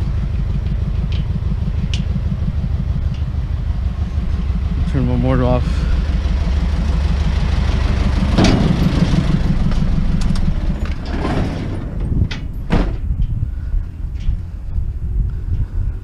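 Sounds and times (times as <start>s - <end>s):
truck engine idling: 0.0s - 16.0s
sharp knocks and clunks: 8.2s - 13.2s.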